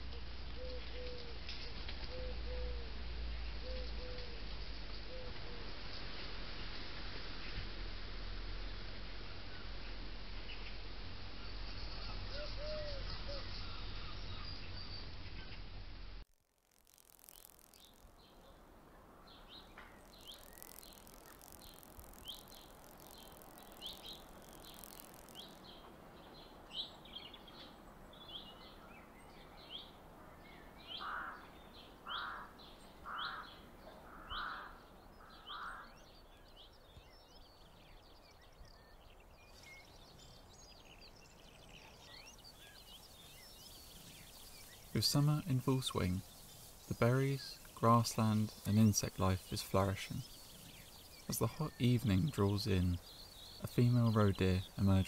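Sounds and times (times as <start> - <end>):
bird lower calls: 0.0 - 1.4, 2.0 - 3.0, 3.6 - 4.4, 12.0 - 14.6, 30.8 - 36.2.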